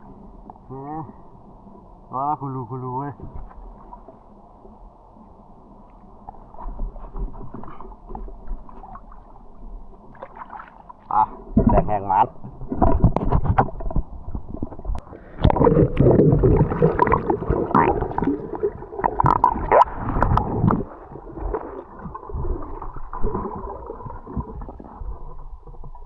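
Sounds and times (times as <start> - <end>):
water gurgling and bubbling: 6.4 - 26.0
underwater knocks: 11.5 - 22.4.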